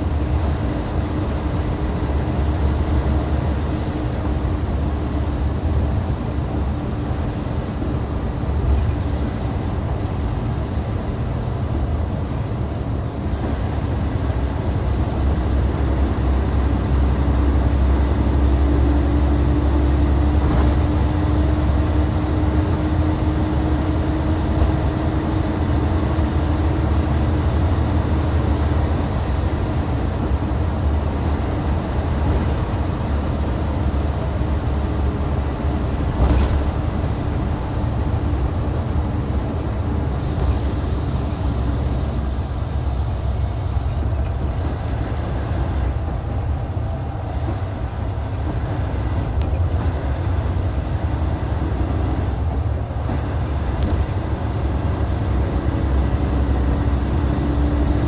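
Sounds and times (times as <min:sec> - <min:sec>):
diesel engine humming: 0:00.0 - 0:58.0
hiss of air: 0:40.1 - 0:44.2.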